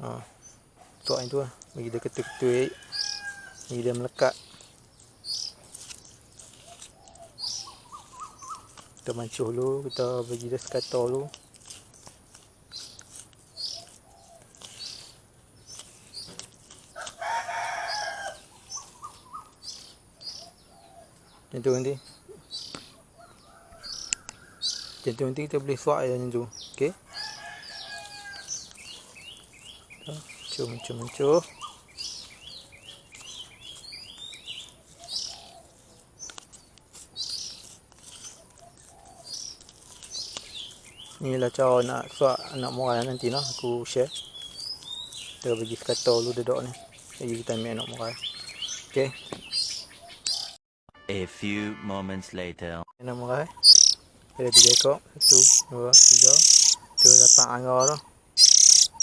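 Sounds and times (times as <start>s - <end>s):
high bird chirps: 0.4s - 9.2s, 12.7s - 21.0s, 26.6s - 50.6s, 53.1s - 59.0s
rooster crowing: 2.1s - 3.7s, 17.0s - 18.4s, 27.0s - 28.6s.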